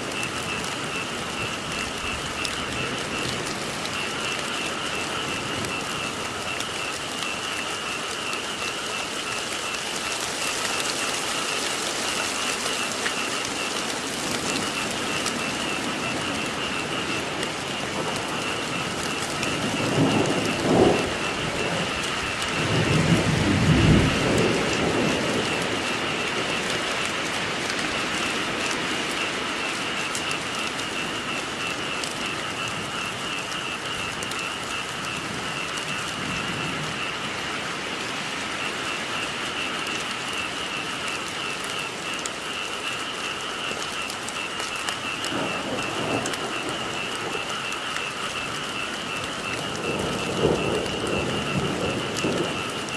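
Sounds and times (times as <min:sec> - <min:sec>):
frogs trilling: 0:00.0 - 0:52.9
steady rain: 0:00.0 - 0:52.9
thunder rolling: 0:13.5 - 0:27.2, 0:45.2 - 0:52.9.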